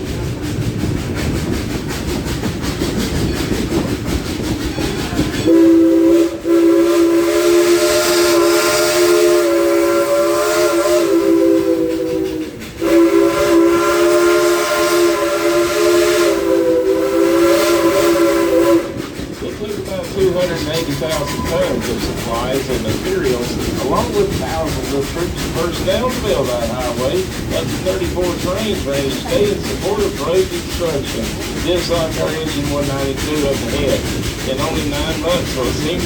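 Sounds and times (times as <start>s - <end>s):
train rumbling on track: 0.0s - 36.0s
chime steam whistle blasts: 5.5s - 19.0s.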